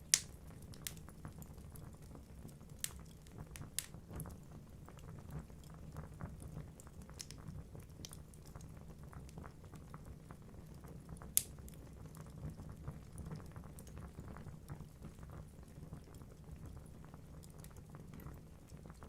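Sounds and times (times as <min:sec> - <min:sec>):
sharp pop from fire: 0:00.0 - 0:01.0, 0:11.4 - 0:11.6
fire rumbling: 0:00.0 - 0:19.0.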